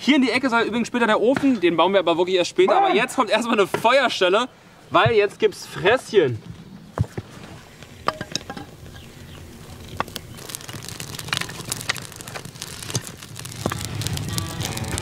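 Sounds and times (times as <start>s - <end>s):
dry twigs crackling and snapping: 7.7s - 15.0s.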